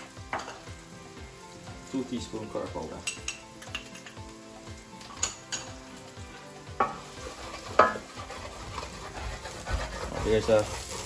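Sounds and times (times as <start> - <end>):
food sizzling in a pan: 0.0 - 11.0
spoon scraping and clinking pan: 6.8 - 11.0.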